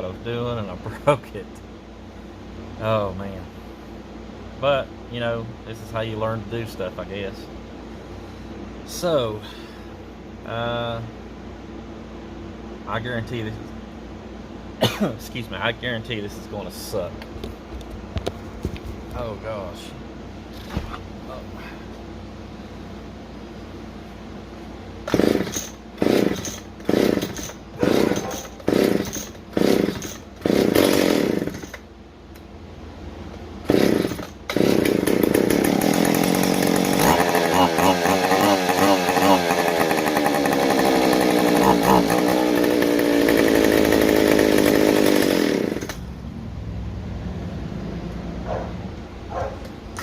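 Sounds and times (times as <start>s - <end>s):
chainsaw engine running: 25.0s - 31.8s, 33.6s - 46.1s
chainsaw starter cord pulls: 25.0s - 31.8s, 33.7s - 46.0s.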